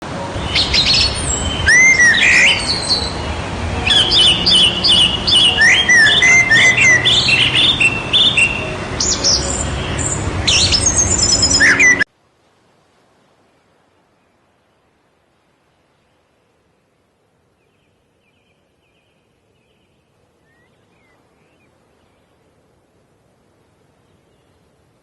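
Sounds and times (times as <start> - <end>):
low background hiss: 0.0 - 25.0
birds chirping and whistling: 0.4 - 12.1.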